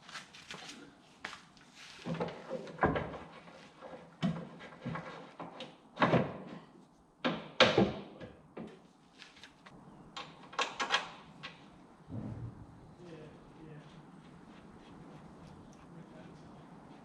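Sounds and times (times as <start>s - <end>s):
knocks and clunks on machine: 4.2s - 8.8s, 12.1s - 12.6s.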